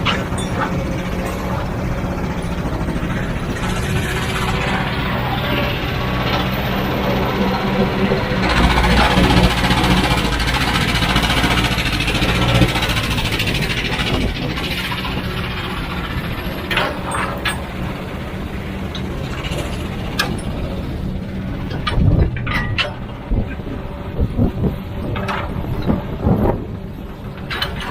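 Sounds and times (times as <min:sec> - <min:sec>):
sharp metal knocks and clanks: 0:00.0 - 0:05.6, 0:08.4 - 0:17.9, 0:21.6 - 0:23.6
heavy diesel machinery running: 0:00.0 - 0:27.9.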